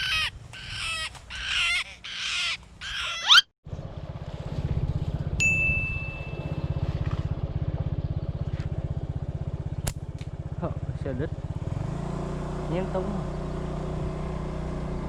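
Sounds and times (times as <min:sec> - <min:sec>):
voice-like calls: 0:00.0 - 0:03.5
small motorcycle engine running: 0:03.7 - 0:15.0
high ding: 0:05.4 - 0:06.5.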